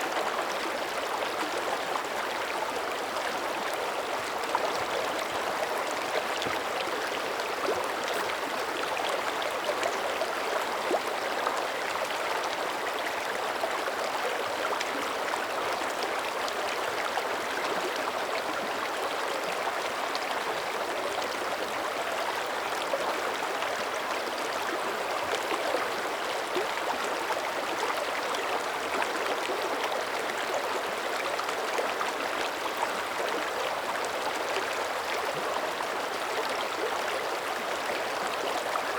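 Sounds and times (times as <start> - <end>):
creek water flowing: 0.0 - 38.9.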